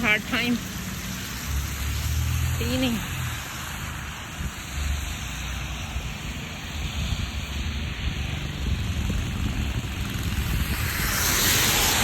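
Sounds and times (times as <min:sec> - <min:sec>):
hiss of thrown snow: 0:10.8 - 0:12.0.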